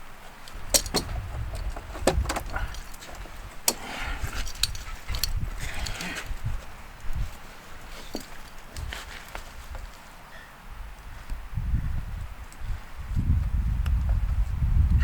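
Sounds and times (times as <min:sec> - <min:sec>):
metal clicks and clinks: 0:00.5 - 0:06.3, 0:07.8 - 0:09.4.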